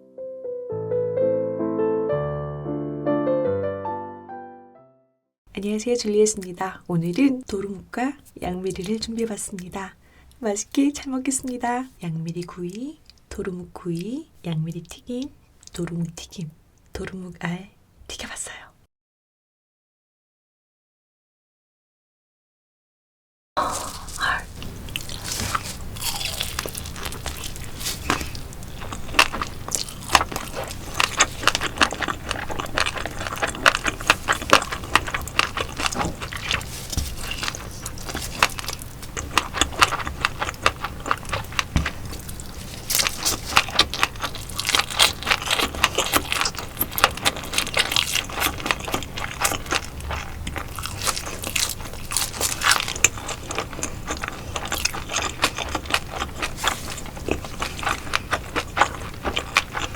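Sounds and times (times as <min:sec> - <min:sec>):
crunching and chewing food: 0:05.8 - 0:16.0, 0:23.6 - 0:59.9.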